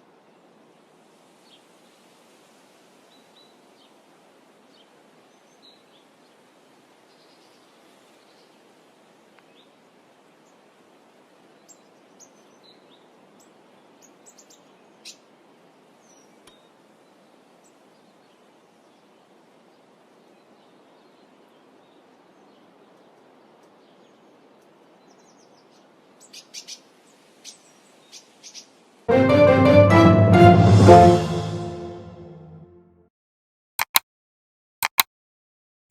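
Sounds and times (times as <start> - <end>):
steady background hiss: 0.0 - 29.1
small birds chirping: 20.4 - 28.8
sharp clicks: 33.8 - 34.0, 34.8 - 35.1.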